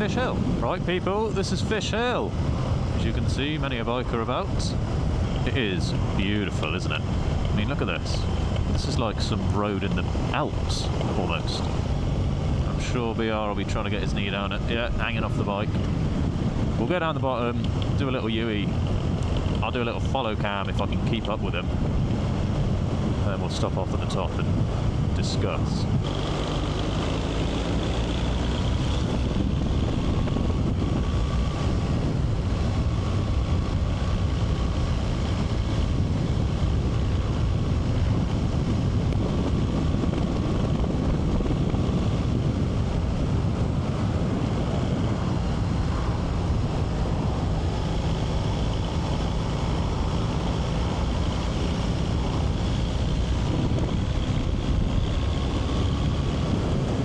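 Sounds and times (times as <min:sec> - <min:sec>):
wind noise on microphone: 0:00.0 - 0:57.0
motorcycle engine running: 0:25.9 - 0:57.0.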